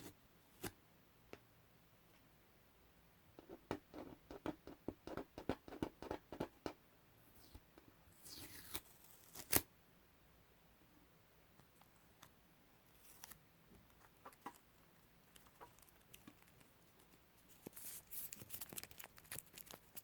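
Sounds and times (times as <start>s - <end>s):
tape peeling crackle: 8.3s - 9.7s, 17.5s - 20.0s.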